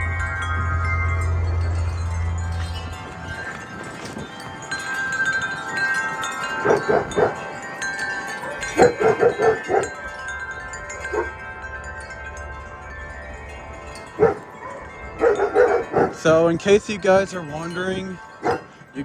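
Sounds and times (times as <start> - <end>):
metal wind chimes ringing: 0.0 - 19.0
dog barking: 6.6 - 7.5, 8.4 - 10.0, 11.1 - 11.4, 14.2 - 16.3, 18.4 - 18.7.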